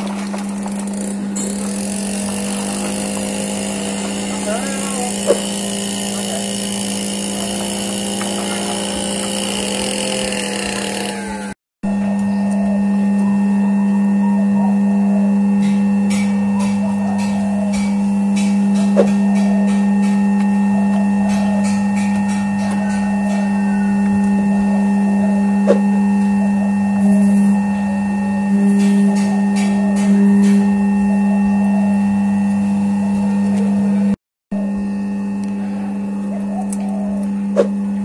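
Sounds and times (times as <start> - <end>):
oil press machine humming: 0.0 - 11.6.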